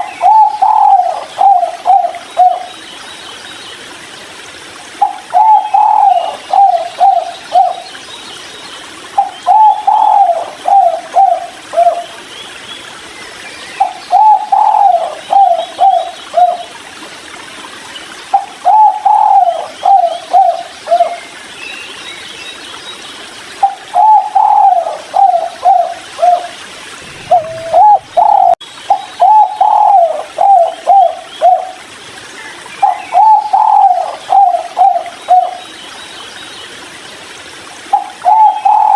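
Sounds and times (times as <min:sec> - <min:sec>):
dove cooing: 0:00.0 - 0:02.7, 0:05.0 - 0:07.8, 0:09.2 - 0:12.0, 0:14.1 - 0:16.6, 0:18.6 - 0:21.1, 0:23.6 - 0:28.6, 0:29.2 - 0:31.8, 0:32.8 - 0:35.6, 0:37.9 - 0:38.9.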